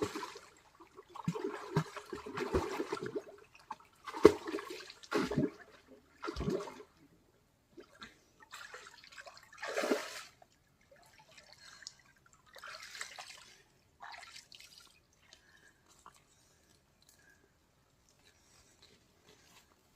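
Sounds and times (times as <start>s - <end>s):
water splashing: 1.1s - 6.8s.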